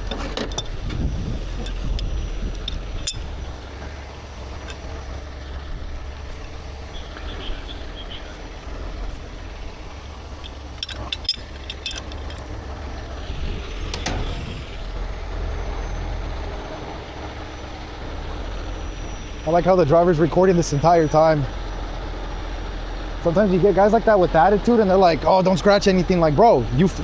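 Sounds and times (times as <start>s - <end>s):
sharp metallic clinks: 0.0s - 5.4s, 9.6s - 13.1s
truck diesel engine idling: 0.0s - 27.0s.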